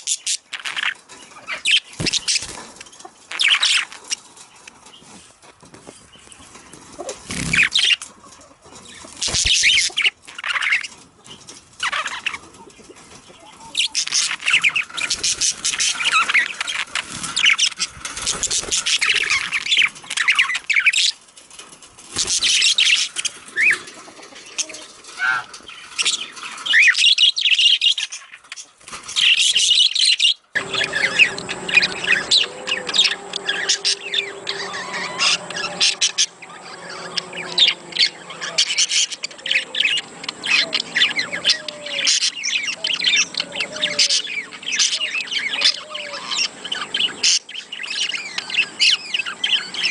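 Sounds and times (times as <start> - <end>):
budgerigars chattering: 0.0 - 4.3, 6.2 - 21.2, 22.1 - 49.9
steady low hum: 30.5 - 45.5.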